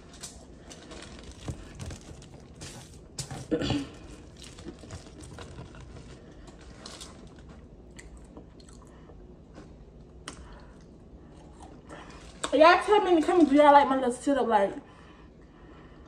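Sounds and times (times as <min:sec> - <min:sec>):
soft crunches: 0:00.0 - 0:08.4
person chewing: 0:00.3 - 0:12.5.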